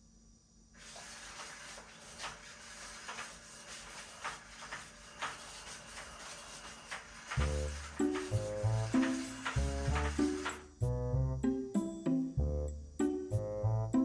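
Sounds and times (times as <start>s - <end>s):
soft rustling and shuffling: 0.8s - 10.6s.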